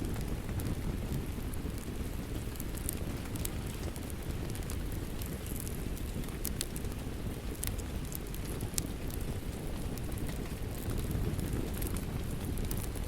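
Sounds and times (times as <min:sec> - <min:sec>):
rain rumbling: 0:00.0 - 0:13.0
wood fire crackling and popping: 0:00.0 - 0:13.0.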